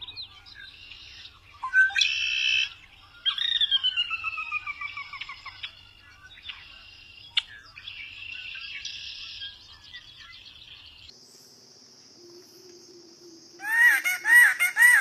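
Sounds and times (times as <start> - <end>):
small birds chirping: 0.0 - 11.5.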